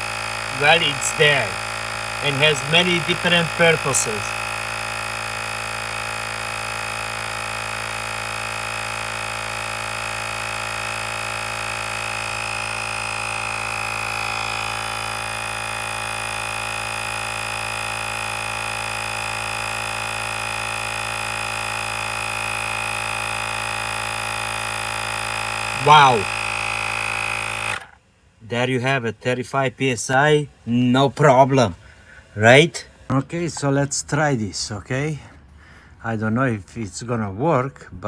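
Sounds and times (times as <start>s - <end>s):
tyre inflator motor whining: 0.0s - 28.1s.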